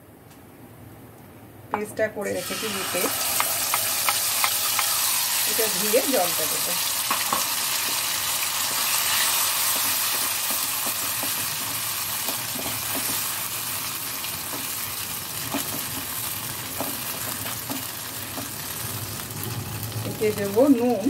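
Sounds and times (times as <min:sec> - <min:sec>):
paste sizzling in hot oil: 0:02.2 - 0:21.0
spatula scraping a pan: 0:07.0 - 0:13.4.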